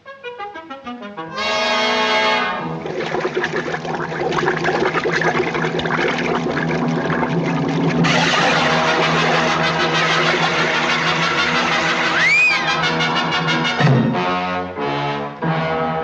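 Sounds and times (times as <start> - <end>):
orchestral cartoon music with brass: 0.0 - 3.0, 8.1 - 16.0.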